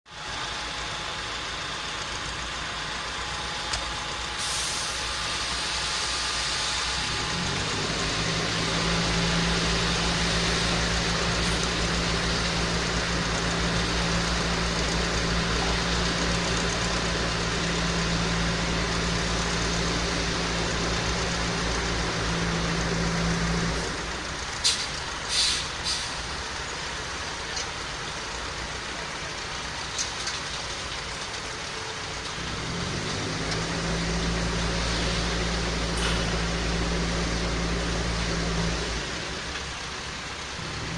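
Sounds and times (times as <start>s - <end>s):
diesel engine hum: 0.1s - 40.9s
traffic noise: 0.1s - 40.9s
short hissing bursts: 24.6s - 26.2s.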